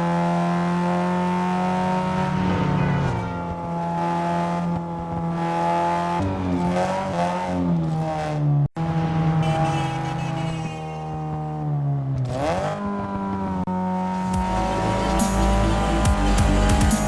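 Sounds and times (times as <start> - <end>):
turbo car engine running: 8.8 - 17.0.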